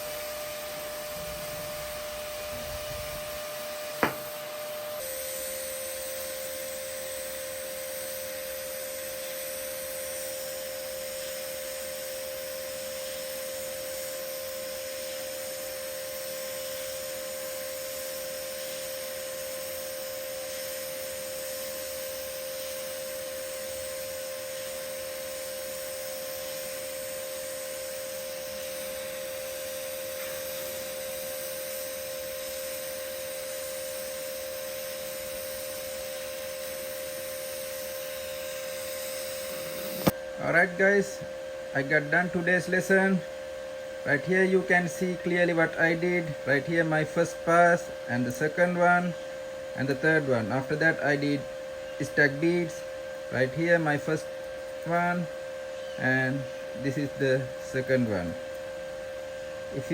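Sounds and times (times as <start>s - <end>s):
welding arc hum and hiss: 0.0s - 59.9s
sharp click: 4.0s - 4.4s, 39.6s - 40.2s.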